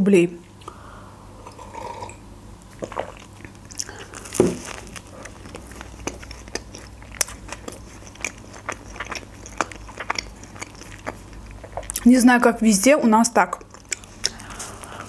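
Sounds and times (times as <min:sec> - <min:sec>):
person chewing and crunching: 0:02.7 - 0:12.1, 0:13.4 - 0:15.0.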